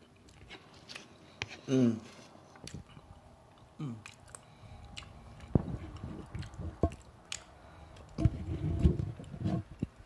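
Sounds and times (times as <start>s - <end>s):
man chewing food: 0.0s - 10.0s
wet mouth noises: 2.5s - 10.0s.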